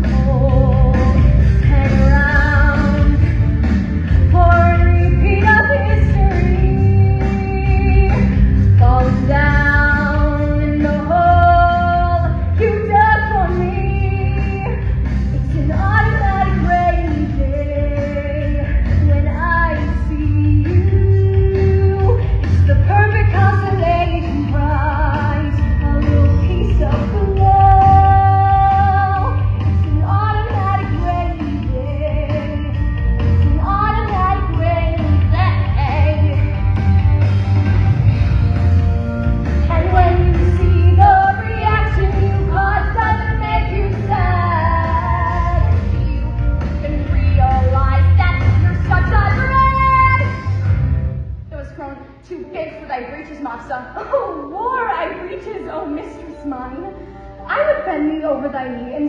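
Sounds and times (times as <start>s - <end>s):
women singing: 0.0s - 3.4s, 4.3s - 32.8s, 39.7s - 50.5s
low musical accompaniment: 0.0s - 59.0s.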